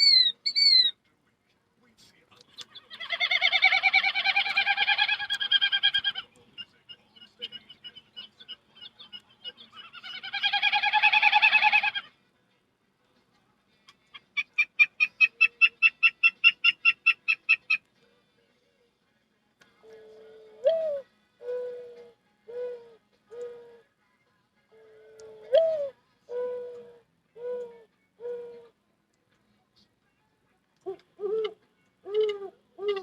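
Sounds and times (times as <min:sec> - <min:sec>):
person imitating bird calls: 0:00.0 - 0:00.9, 0:02.5 - 0:06.3, 0:07.5 - 0:12.1.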